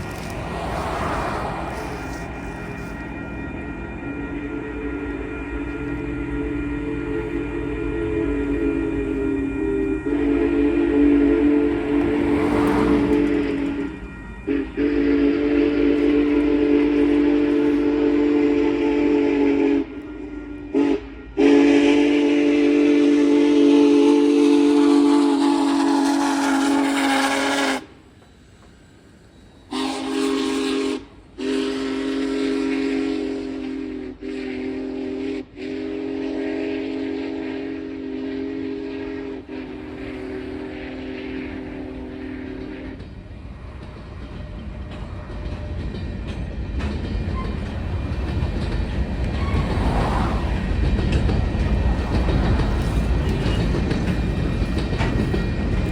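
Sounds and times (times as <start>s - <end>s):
steam whistle blasts: 0.1s - 28.0s, 29.6s - 43.0s, 49.2s - 50.6s.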